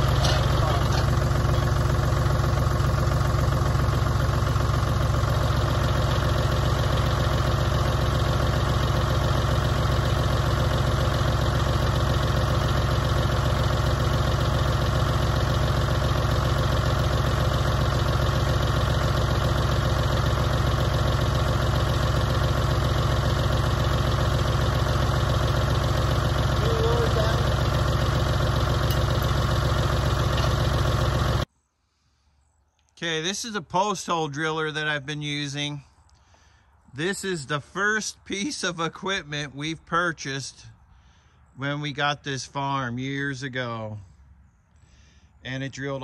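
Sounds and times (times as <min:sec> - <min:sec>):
auger drilling into ground: 0:00.0 - 0:31.4
tractor engine running: 0:00.0 - 0:31.5.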